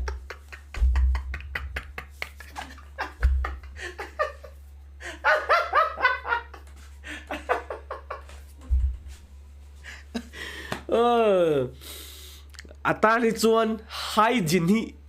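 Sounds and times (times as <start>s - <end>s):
person laughing: 0.0s - 8.4s
low thumps: 0.7s - 1.6s, 8.6s - 9.2s.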